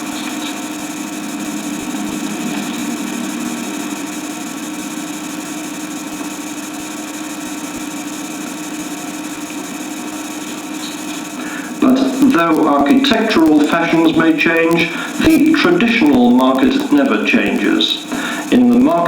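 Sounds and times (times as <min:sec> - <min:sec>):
mechanical hum with hiss: 0:00.0 - 0:19.0.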